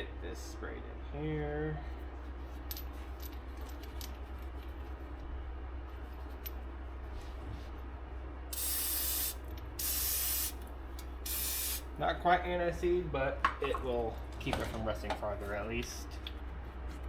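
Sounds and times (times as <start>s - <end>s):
aerosol spray can hiss: 8.6s - 10.6s, 11.3s - 11.8s.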